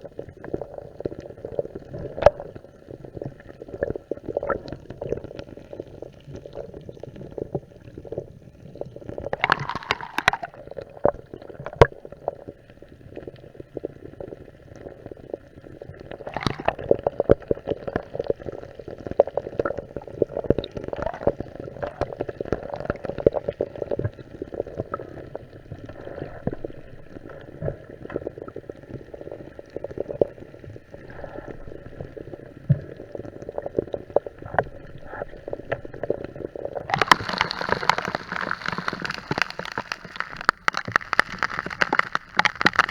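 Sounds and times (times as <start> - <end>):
muffled underwater gurgling: 0.0 - 42.9
bursts of bubbling: 9.4 - 10.8, 16.2 - 17.0, 36.9 - 42.9
sharp clicks: 36.9 - 42.9.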